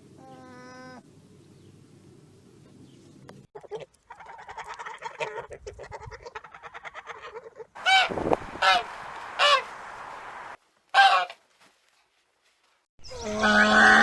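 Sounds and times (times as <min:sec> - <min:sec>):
waterfowl chattering calls: 0:06.4 - 0:11.2
waterfowl honking: 0:07.8 - 0:11.3.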